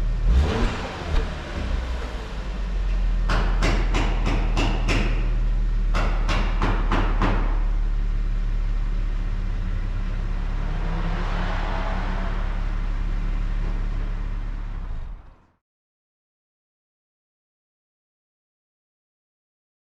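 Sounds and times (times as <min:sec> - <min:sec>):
car engine idling: 0:00.0 - 0:15.5.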